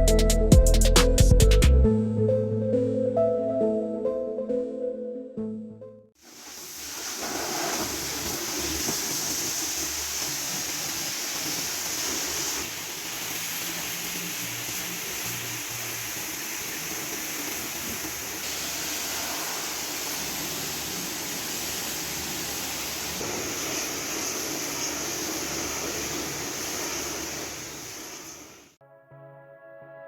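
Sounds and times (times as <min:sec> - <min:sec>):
cleaning equipment hissing: 0:06.2 - 0:28.8.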